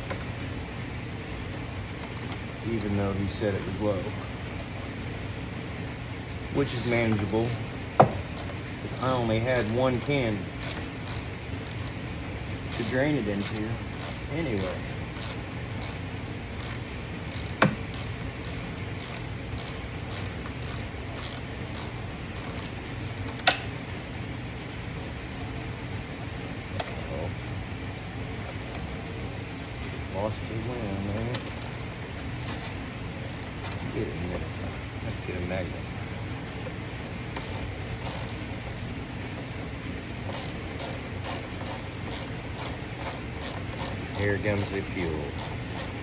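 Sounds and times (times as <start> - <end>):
steady low hum: 0.0 - 46.0
ratchet wrench clicking: 7.1 - 7.7, 8.3 - 12.0, 12.7 - 23.6, 31.3 - 31.9, 33.2 - 33.6, 37.4 - 38.4, 40.2 - 46.0.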